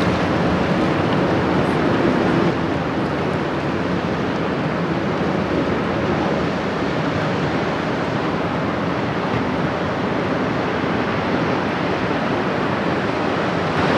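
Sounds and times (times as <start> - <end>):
river water rushing: 0.0 - 13.9
wind: 0.0 - 13.9.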